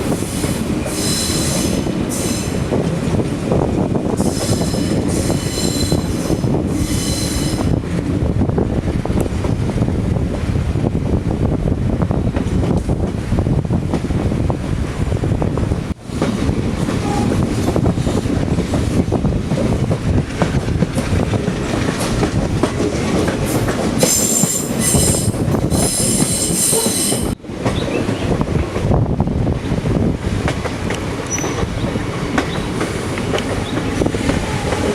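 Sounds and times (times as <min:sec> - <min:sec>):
train wheels clattering on rails: 0:00.0 - 0:08.5, 0:12.1 - 0:15.1, 0:15.9 - 0:29.0, 0:29.6 - 0:34.9
high metallic wheel squeal: 0:04.3 - 0:06.2, 0:06.8 - 0:07.6.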